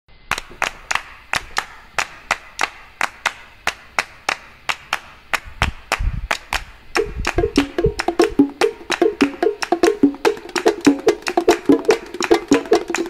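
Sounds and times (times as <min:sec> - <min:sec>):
sharp percussive clacks: 0:00.3 - 0:13.0
low thumps: 0:07.0 - 0:13.0.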